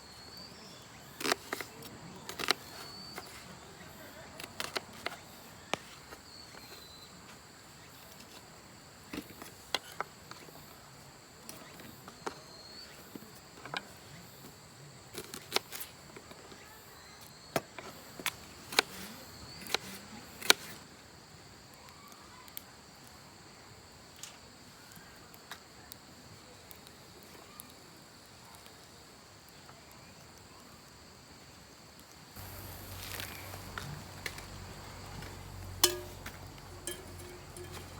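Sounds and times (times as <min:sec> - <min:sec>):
insects singing: 0:32.4 - 0:37.9
sharp clicks and knocks: 0:32.4 - 0:37.9.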